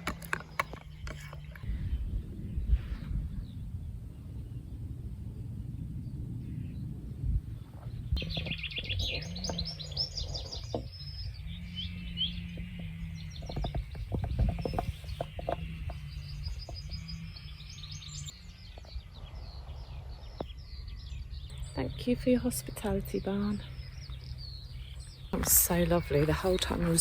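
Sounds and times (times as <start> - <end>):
clicks and knocks: 0.0 - 1.7
songbirds trilling: 0.0 - 27.0
low rumble: 0.8 - 27.0.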